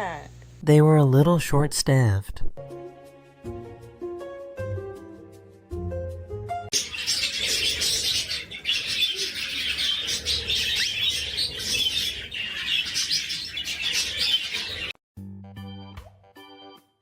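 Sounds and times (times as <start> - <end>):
many birds chirping: 6.7 - 15.0.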